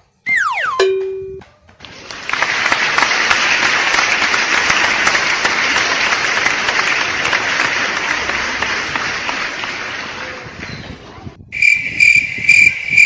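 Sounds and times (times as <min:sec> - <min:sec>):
many hands clapping: 0:01.4 - 0:10.7.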